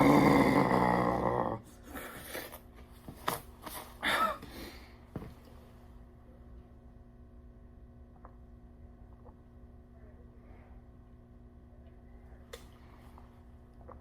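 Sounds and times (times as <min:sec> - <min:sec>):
man groaning: 0:00.0 - 0:01.6.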